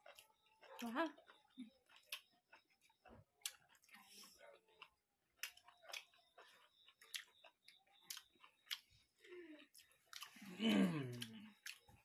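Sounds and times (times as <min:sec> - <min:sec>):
people chewing: 0:00.0 - 0:12.0.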